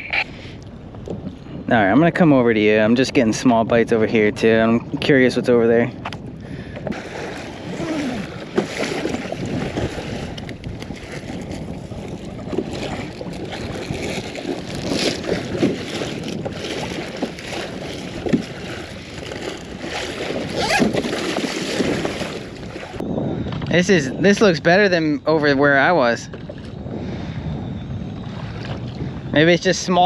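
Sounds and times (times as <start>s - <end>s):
wind buffeting microphone: 0.0s - 30.0s
water splashing against kayak hull: 6.0s - 23.0s.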